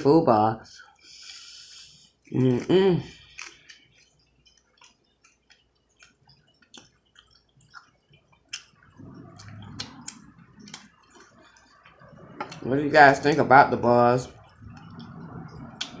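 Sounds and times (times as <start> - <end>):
chewing: 2.0 - 13.4, 14.3 - 16.0
wet mouth clicks and lip smacks: 3.2 - 12.7, 14.7 - 16.0.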